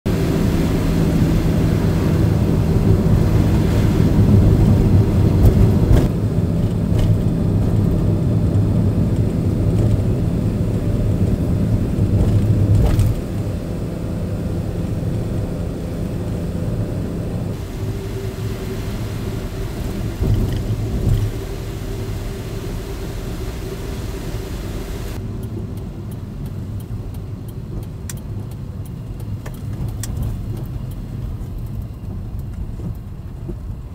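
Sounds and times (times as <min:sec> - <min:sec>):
truck engine and road drone: 0:00.0 - 0:33.9.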